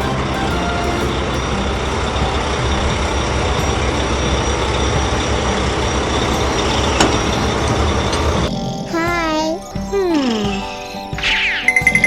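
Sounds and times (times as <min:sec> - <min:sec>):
heavy truck engine rumbling: 0:00.0 - 0:08.5.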